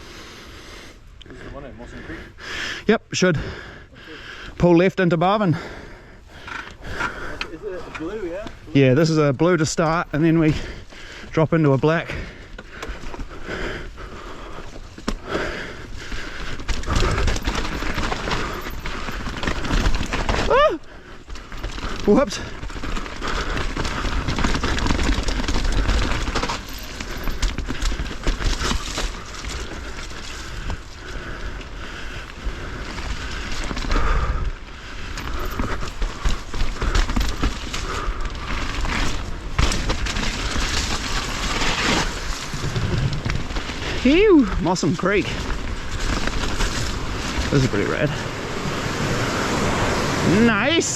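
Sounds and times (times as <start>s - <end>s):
bike tyres on rough trail: 0.0s - 50.9s
bike rattling clicks and knocks: 6.4s - 48.3s
heavy rumble: 15.4s - 50.6s.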